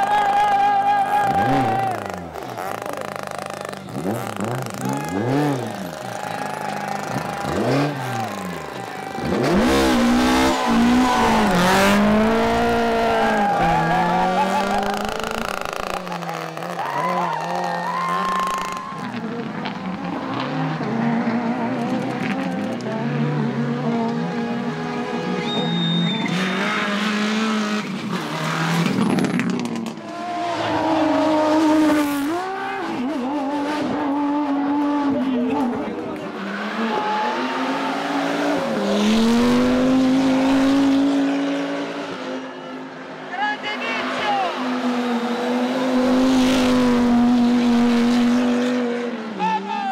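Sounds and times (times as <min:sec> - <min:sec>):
rally car engine accelerating: 0:00.0 - 0:43.4, 0:44.1 - 0:49.7.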